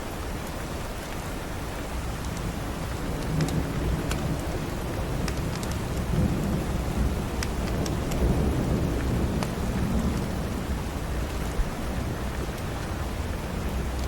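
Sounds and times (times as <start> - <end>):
heavy rain: 0.0 - 14.0
thunder rumbling: 2.8 - 14.0.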